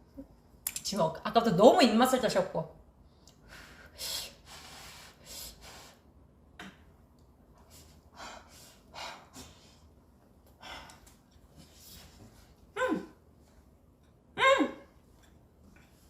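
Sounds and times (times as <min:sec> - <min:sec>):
person breathing: 0:03.2 - 0:06.1.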